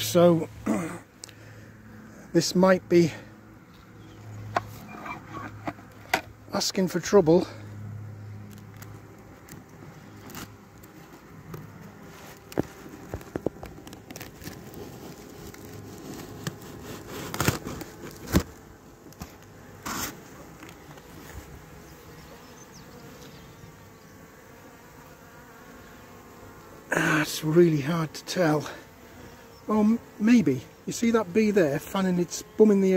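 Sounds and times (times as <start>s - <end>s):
bees buzzing: 0.0s - 32.9s
hive box knocks and clicks: 12.4s - 14.4s.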